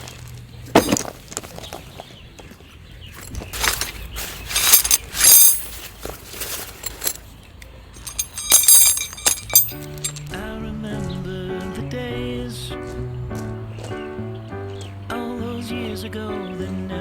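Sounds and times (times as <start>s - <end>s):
objects scraping and knocking: 0.7s - 1.8s, 3.2s - 7.4s
ringing metallic clinks: 3.6s - 5.9s, 8.0s - 10.3s.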